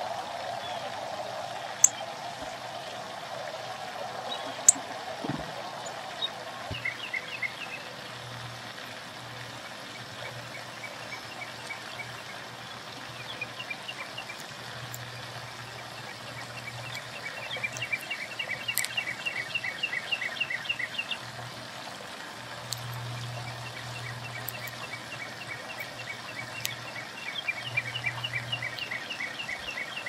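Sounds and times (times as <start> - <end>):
songbird calling sharp notes: 13.2 - 21.2, 22.8 - 30.0.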